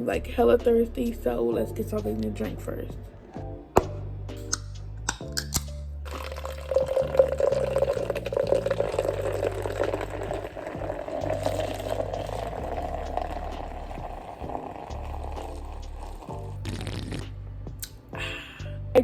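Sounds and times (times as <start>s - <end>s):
drink pouring into plastic cup: 6.1s - 17.1s.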